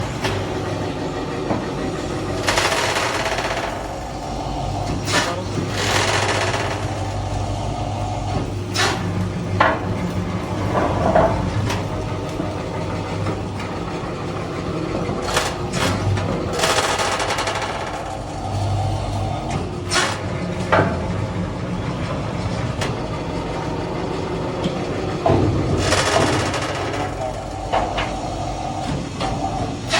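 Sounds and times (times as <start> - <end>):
hydraulic press motor humming: 0.0 - 29.9
hissing bursts: 8.5 - 12.9.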